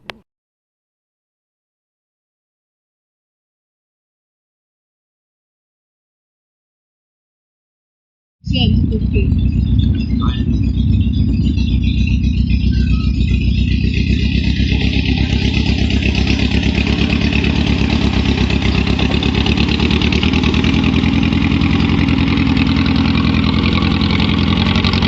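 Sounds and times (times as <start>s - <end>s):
garden tractor engine running: 8.5s - 25.0s.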